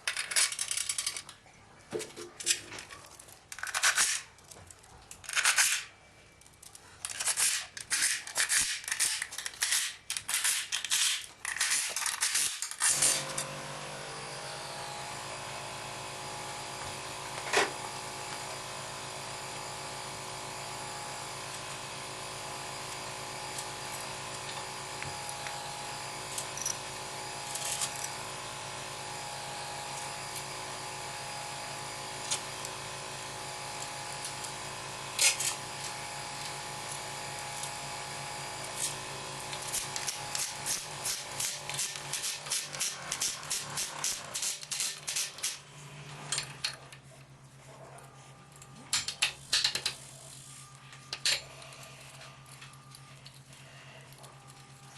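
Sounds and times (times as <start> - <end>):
small electric motor running: 12.8 - 46.4, 49.9 - 54.9.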